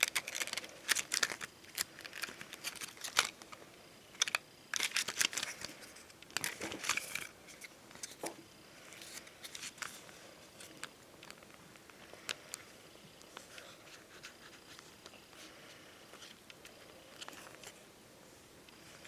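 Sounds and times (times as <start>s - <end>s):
stickers crinkling and rustling: 0.0s - 8.3s, 8.9s - 12.6s.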